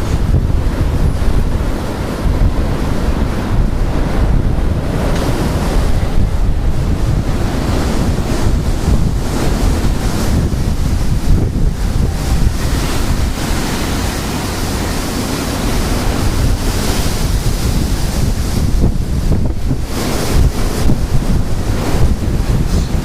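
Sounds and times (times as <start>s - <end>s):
strong gusting wind on microphone: 0.0s - 23.0s.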